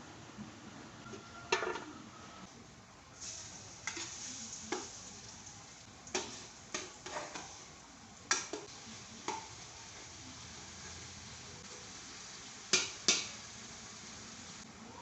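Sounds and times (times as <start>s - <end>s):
food sizzling in a frying pan: 3.1s - 15.0s.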